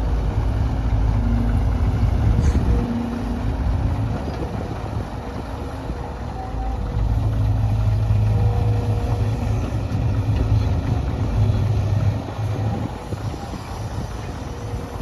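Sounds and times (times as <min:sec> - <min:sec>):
diesel engine droning: 0:00.0 - 0:15.0.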